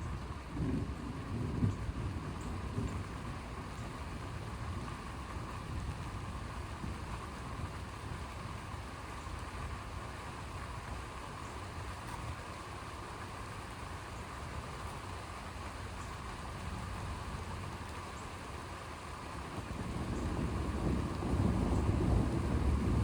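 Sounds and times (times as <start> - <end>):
steady rain: 0.0 - 23.0
deep low thunder rumble: 0.2 - 8.4, 19.5 - 23.0.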